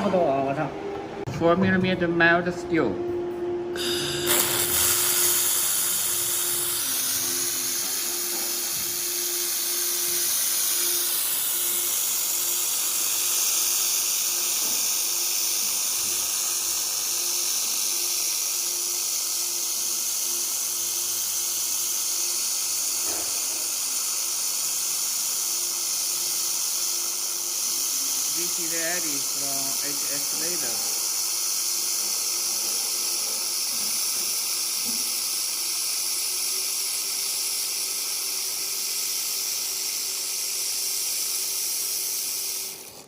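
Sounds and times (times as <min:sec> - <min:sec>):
low machine hum: 0:00.0 - 0:21.8
high hiss of laser welding: 0:03.8 - 0:43.0.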